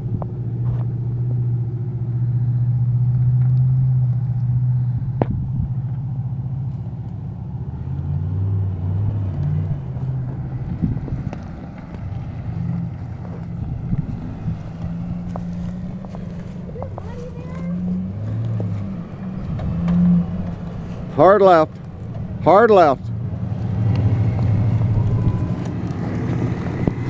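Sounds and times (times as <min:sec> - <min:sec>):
vehicle engine at low revs: 0:00.0 - 0:27.0.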